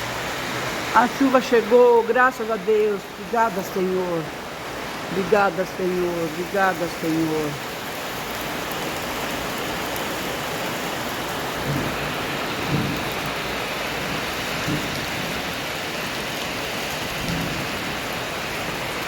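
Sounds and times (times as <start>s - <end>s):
steady rain falling: 0.0s - 19.0s
low thuds: 11.6s - 13.4s, 14.5s - 15.4s.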